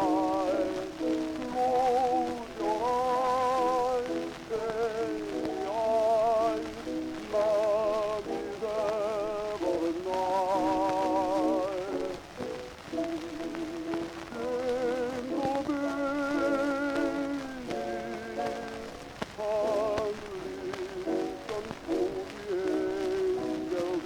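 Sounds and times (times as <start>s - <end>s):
record crackle and hiss: 0.0s - 24.0s.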